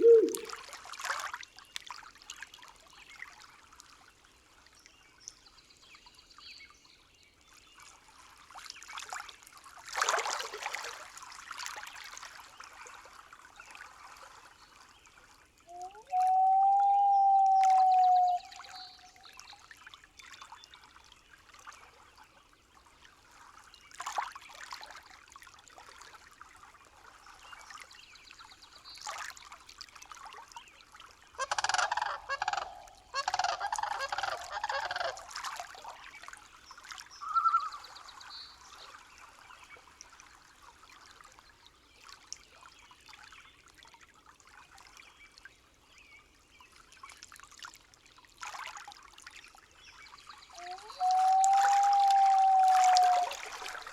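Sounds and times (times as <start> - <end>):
bird calls: 0.0 - 0.5, 15.7 - 19.1, 31.4 - 35.3, 37.2 - 37.8, 50.5 - 53.5
faint trickling water: 0.0 - 53.9.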